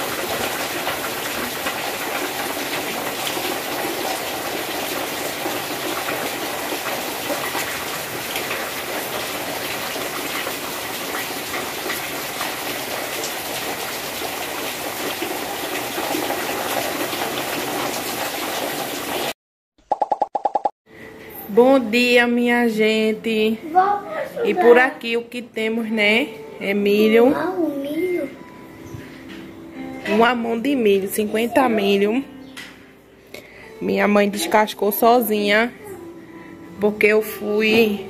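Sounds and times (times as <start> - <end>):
heavy rain: 0.0 - 19.4
water dripping off awning: 0.0 - 19.4.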